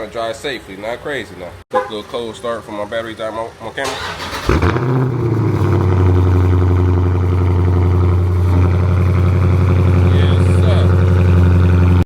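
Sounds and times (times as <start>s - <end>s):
car engine idling: 3.8s - 12.0s
engine cranking: 3.8s - 12.0s.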